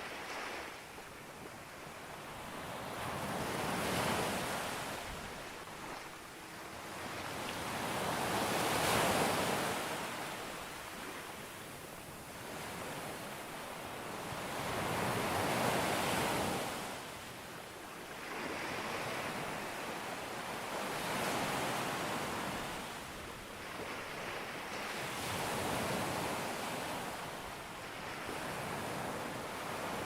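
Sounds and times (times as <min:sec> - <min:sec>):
sea waves breaking on beach: 0:18.1 - 0:30.0.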